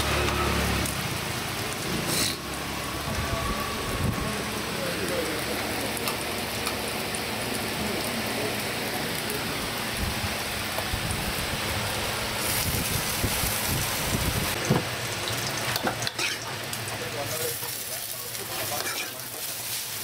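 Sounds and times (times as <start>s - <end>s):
food sizzling in pan: 0.0s - 20.0s
ladle stirring food: 15.7s - 16.6s, 18.3s - 20.0s.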